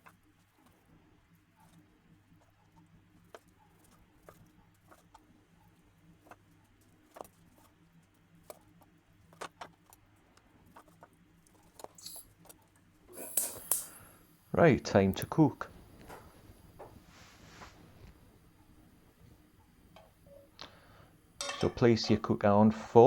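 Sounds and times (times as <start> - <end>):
low steady hum: 13.0 - 23.0.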